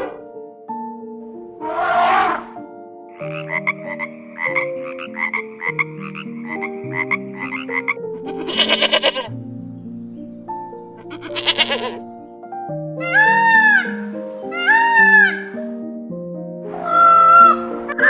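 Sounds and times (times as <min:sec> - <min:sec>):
background music: 0:00.0 - 0:18.0
tree frog croaking: 0:03.2 - 0:09.3
sheep bleating: 0:08.2 - 0:09.3, 0:11.0 - 0:12.0.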